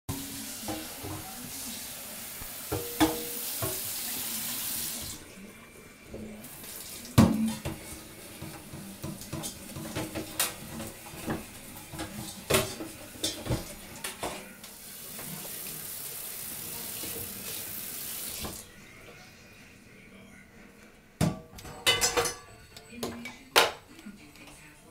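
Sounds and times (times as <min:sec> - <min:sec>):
kitchen tap running: 0:00.1 - 0:05.2, 0:06.1 - 0:18.7
dishes clinking and knocking: 0:00.6 - 0:01.4, 0:02.7 - 0:03.9, 0:07.2 - 0:14.5, 0:21.2 - 0:23.9.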